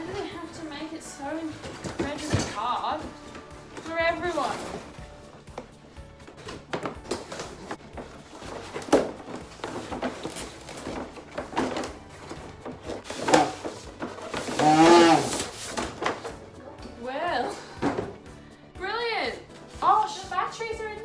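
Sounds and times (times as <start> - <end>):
cardboard and plastic packaging tearing: 6.3 - 16.6.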